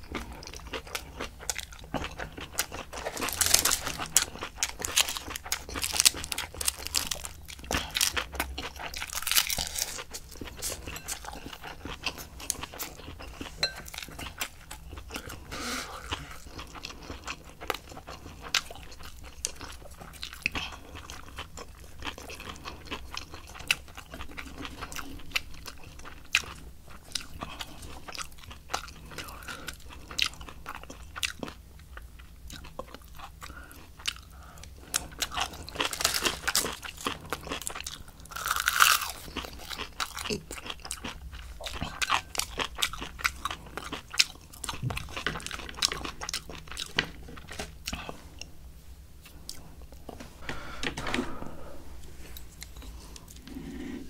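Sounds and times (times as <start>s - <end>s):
crisp cabbage crunching: 0.2s - 15.3s, 34.0s - 48.2s.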